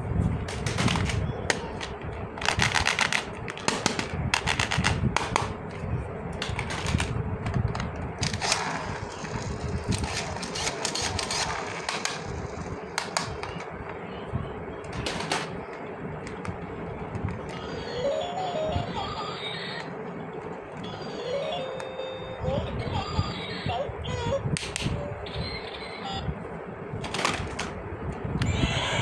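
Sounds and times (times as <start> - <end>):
plastic toy pieces clicking: 0.5 - 5.5, 6.4 - 9.3.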